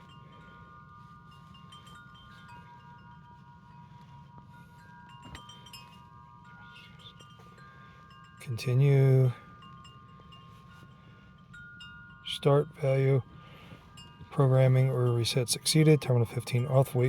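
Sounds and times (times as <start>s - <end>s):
low steady hum: 0.0s - 17.0s
wind chime ringing: 0.0s - 17.0s.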